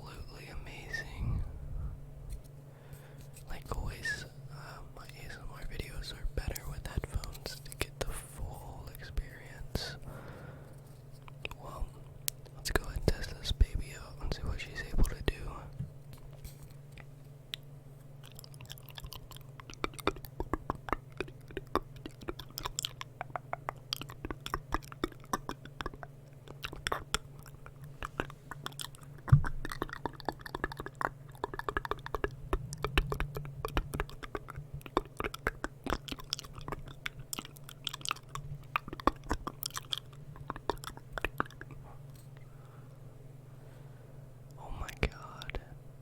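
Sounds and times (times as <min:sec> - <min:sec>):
low hum: 0:00.0 - 0:46.0
wet mouth clicks and smacks: 0:17.0 - 0:42.4.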